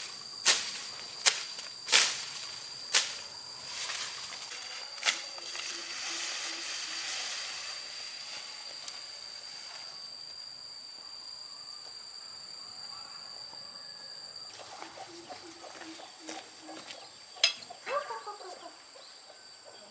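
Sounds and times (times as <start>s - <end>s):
outdoor hiss: 0.0s - 12.7s
insects trilling: 0.0s - 19.9s.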